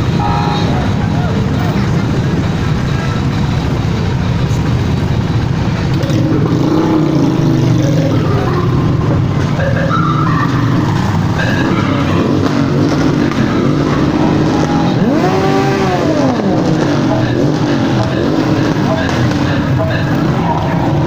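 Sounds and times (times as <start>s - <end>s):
motorcycle engines rumbling: 0.0s - 21.0s
motorcycles revving: 0.0s - 21.0s.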